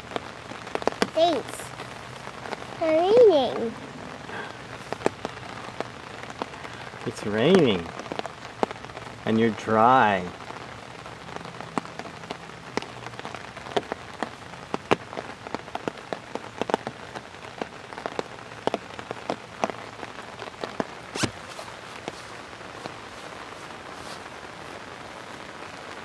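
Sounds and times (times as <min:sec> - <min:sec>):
rain hiss: 0:00.0 - 0:26.0
raindrops tapping on umbrella: 0:00.0 - 0:26.0.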